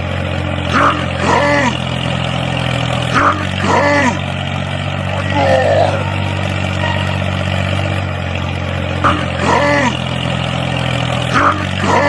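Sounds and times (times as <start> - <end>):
small motor humming: 0.0 - 12.0
rising and falling call: 5.0 - 8.1.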